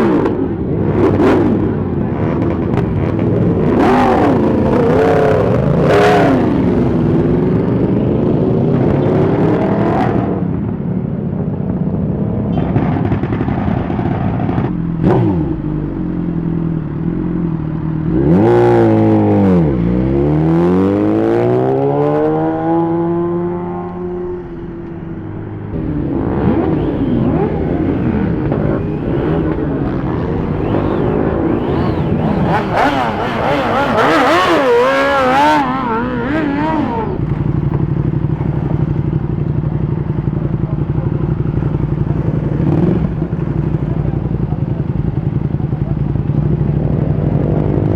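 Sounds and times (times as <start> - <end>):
motorcycle engines revving: 0.0 - 47.9.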